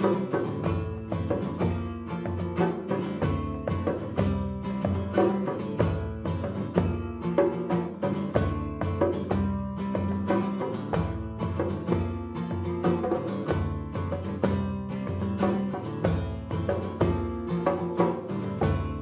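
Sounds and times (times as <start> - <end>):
strummed guitar: 0.0 - 19.0.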